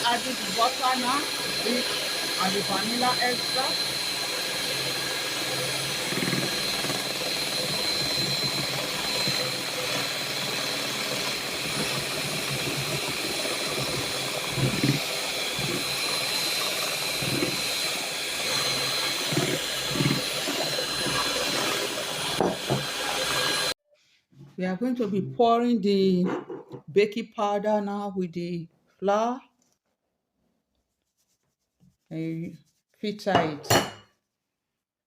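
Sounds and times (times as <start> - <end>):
electric mixer whirring: 0.0 - 23.8.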